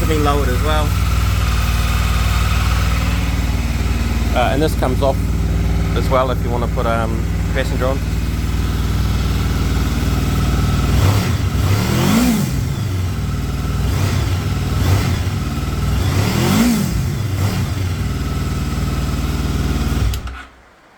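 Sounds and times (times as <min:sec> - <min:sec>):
motorcycle engine idling and revving: 0:00.0 - 0:20.8.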